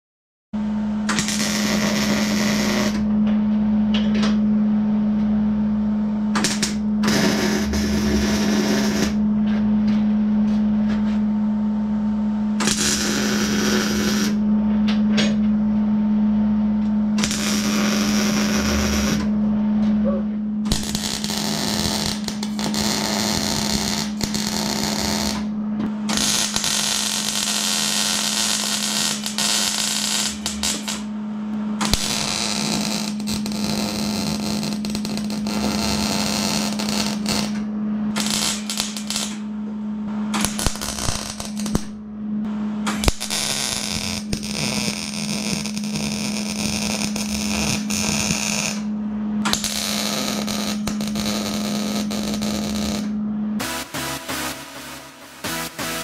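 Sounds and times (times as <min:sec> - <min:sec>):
steady low hum: 0:00.6 - 0:56.0
welding arc crackling and hissing: 0:01.1 - 0:03.0, 0:06.4 - 0:09.2, 0:12.6 - 0:14.4, 0:17.2 - 0:19.3, 0:20.7 - 0:25.5, 0:26.1 - 0:31.1, 0:31.8 - 0:37.6, 0:38.2 - 0:39.4, 0:40.4 - 0:42.0, 0:42.9 - 0:48.9, 0:49.5 - 0:56.0.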